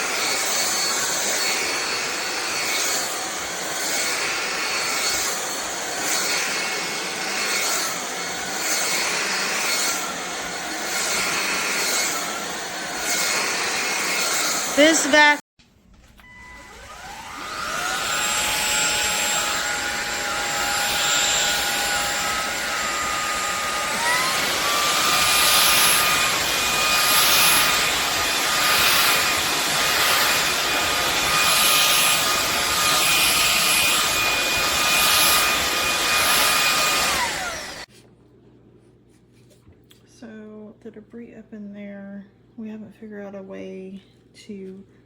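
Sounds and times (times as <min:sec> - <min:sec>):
vacuum cleaner motor whine: 0:00.0 - 0:15.4, 0:16.0 - 0:37.9
vacuum suction noise: 0:16.2 - 0:37.9.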